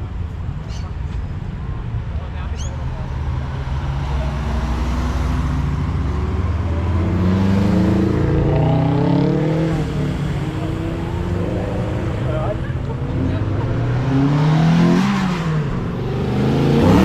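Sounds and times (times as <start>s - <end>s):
cars driving past: 0.4s - 17.0s
engine revving: 3.1s - 17.0s.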